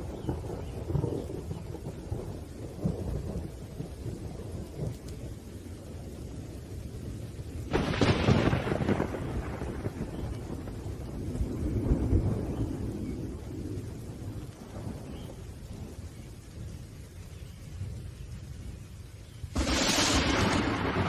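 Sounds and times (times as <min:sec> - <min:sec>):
low rumbling thunder: 0:00.0 - 0:21.0
steady rain: 0:00.0 - 0:21.0
loud thunderclap: 0:07.7 - 0:16.0, 0:19.5 - 0:21.0.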